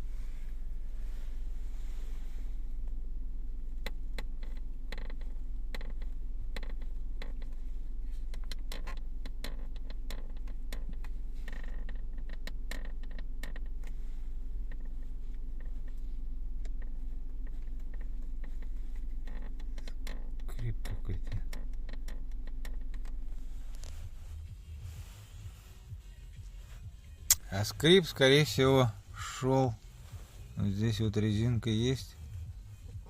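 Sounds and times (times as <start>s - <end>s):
steady low hum: 0.0s - 33.0s
dashboard creaks and clicks: 3.8s - 14.0s, 14.6s - 24.6s.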